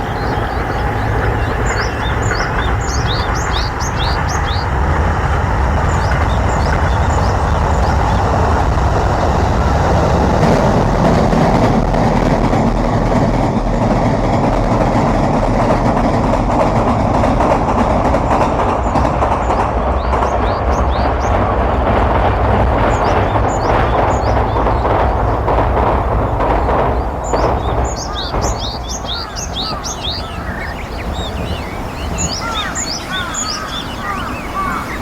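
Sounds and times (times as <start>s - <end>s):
bird chirping: 0.0s - 4.8s, 5.8s - 8.4s, 18.8s - 21.5s, 22.8s - 35.0s
loud steady rumbling noise: 0.0s - 35.0s.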